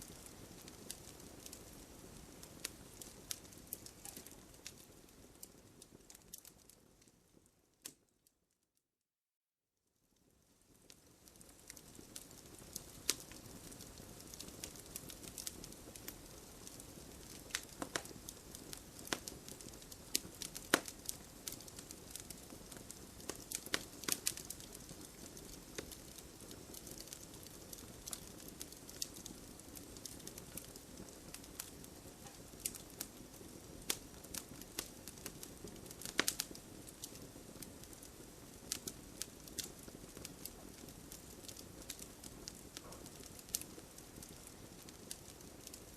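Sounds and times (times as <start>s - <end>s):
wood crackling and popping: 0.0s - 8.1s, 10.6s - 45.9s
fire hissing: 11.3s - 45.9s.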